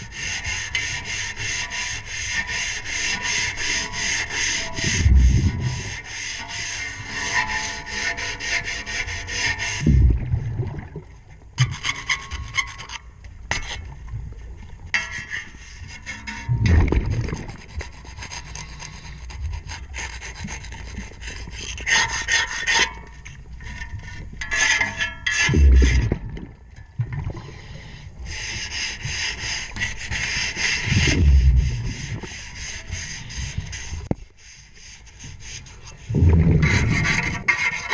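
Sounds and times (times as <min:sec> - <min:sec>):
propeller scrubbed underwater: 0:00.0 - 0:37.9
underwater bubbles gurgling: 0:04.8 - 0:06.0, 0:09.8 - 0:11.5, 0:16.5 - 0:17.7, 0:25.5 - 0:27.9, 0:30.9 - 0:32.4, 0:36.1 - 0:37.4
low thuds: 0:04.9 - 0:06.0, 0:09.8 - 0:10.8, 0:16.5 - 0:17.5, 0:25.5 - 0:27.3, 0:30.9 - 0:32.1, 0:36.1 - 0:37.4.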